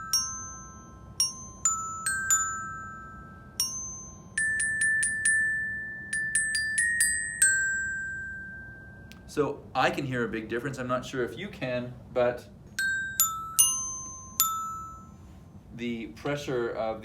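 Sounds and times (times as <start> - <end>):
glockenspiel melody: 0.0 - 9.2, 12.8 - 15.4.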